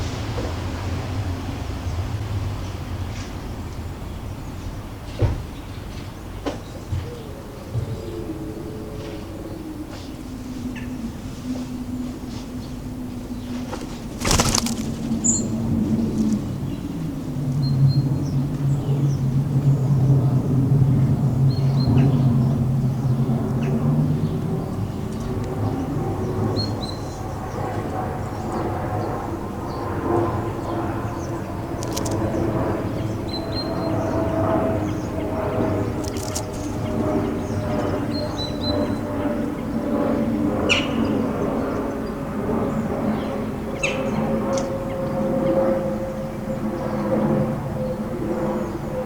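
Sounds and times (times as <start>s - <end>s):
traffic drone: 7.3s - 18.4s, 22.4s - 38.5s
sharp clicks: 31.8s - 32.4s, 36.0s - 36.9s.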